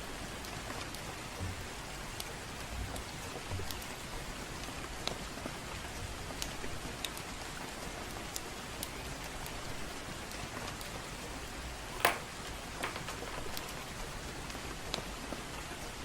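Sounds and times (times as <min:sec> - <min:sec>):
gentle rain: 0:00.0 - 0:16.0
wood fire crackling and popping: 0:11.9 - 0:15.0.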